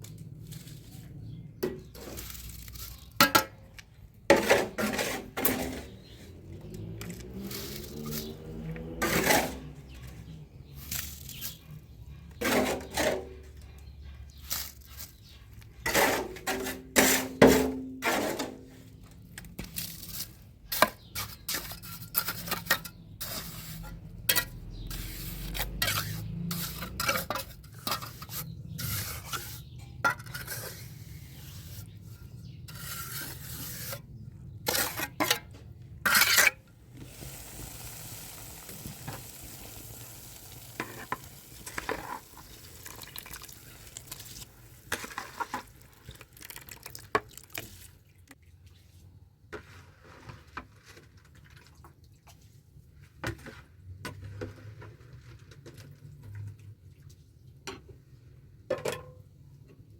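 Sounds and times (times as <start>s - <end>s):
utensil scraping cooking pot: 4.3s - 18.8s, 19.7s - 46.5s
food sizzling: 37.0s - 44.7s.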